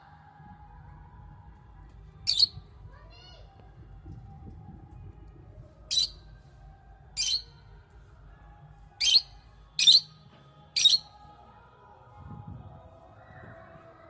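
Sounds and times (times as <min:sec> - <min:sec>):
bird squawking: 0:02.3 - 0:02.5, 0:09.0 - 0:09.2, 0:09.8 - 0:10.1, 0:10.8 - 0:11.0.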